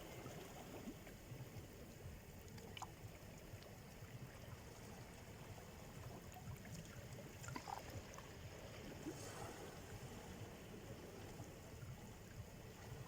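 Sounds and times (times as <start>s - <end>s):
small waves washing on shore: 4.3s - 13.0s.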